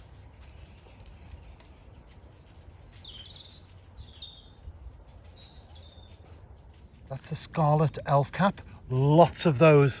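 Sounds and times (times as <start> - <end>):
songbird chirping: 0.0 - 7.8
steady low rumble: 0.0 - 10.0.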